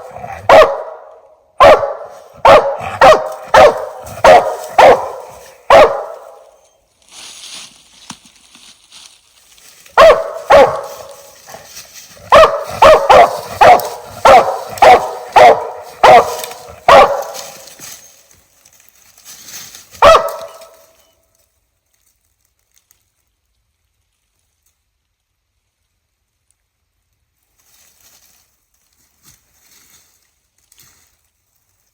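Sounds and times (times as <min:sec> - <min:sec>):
dog barking: 0:00.0 - 0:06.5, 0:10.0 - 0:11.6, 0:12.3 - 0:17.6, 0:20.0 - 0:20.8.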